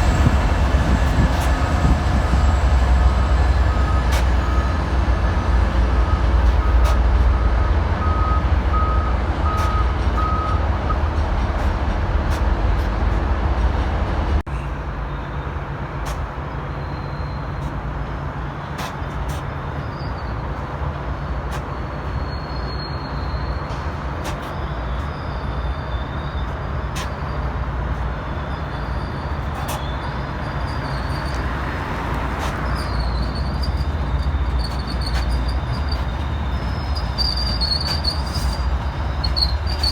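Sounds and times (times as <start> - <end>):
train rumble: 0.0 - 39.9
faint high squeals: 21.7 - 23.8, 24.4 - 27.5, 28.2 - 39.9.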